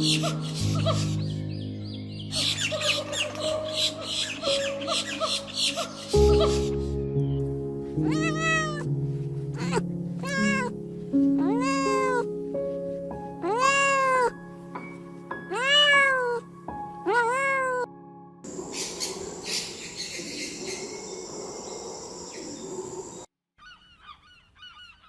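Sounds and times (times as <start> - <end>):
soft background music: 0.0 - 19.1
cat meowing: 8.0 - 8.9, 9.6 - 10.8, 11.4 - 12.3, 13.4 - 14.4, 15.5 - 16.4, 17.0 - 17.9.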